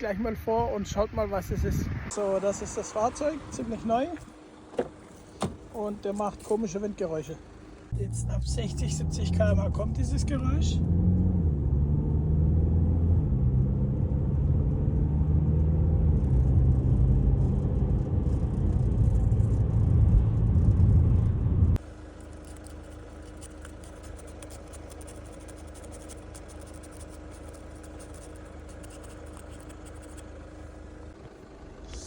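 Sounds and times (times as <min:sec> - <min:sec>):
car road and engine rumble: 0:00.0 - 0:32.0
quiet steady hum: 0:17.4 - 0:32.0.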